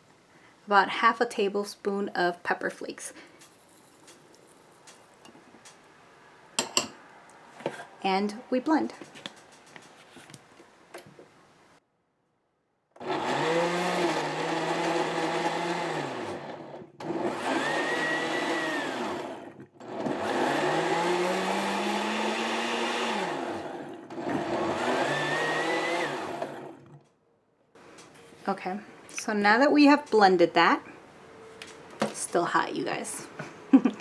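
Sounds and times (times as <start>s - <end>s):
blender motor running: 13.0s - 27.0s.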